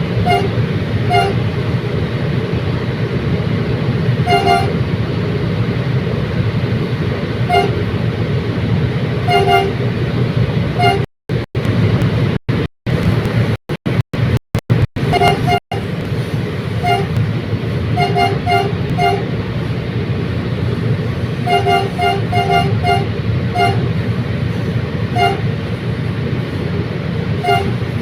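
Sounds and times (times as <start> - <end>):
two-tone horn beeps: 0.0 - 1.6, 4.2 - 4.9, 7.4 - 8.0, 9.2 - 9.8, 10.7 - 11.1, 15.0 - 15.9, 16.8 - 17.2, 17.9 - 19.3, 21.4 - 24.0, 25.1 - 25.5, 27.4 - 28.0
train rumbling: 0.0 - 28.0.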